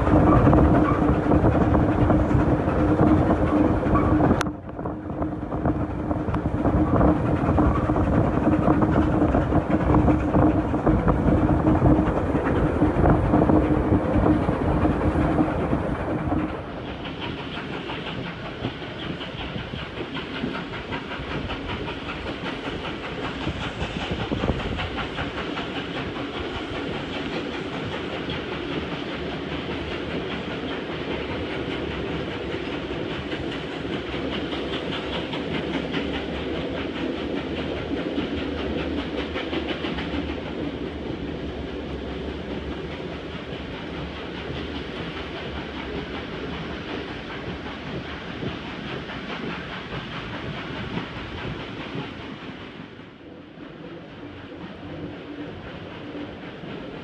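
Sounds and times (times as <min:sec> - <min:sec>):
train wheels clacking on rails: 0:00.0 - 0:57.0.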